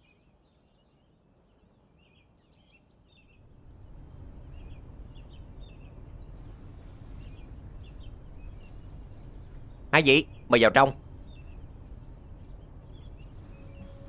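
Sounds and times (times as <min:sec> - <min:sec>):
small birds chirping: 0:00.0 - 0:14.0
low outdoor rumble: 0:03.3 - 0:14.0.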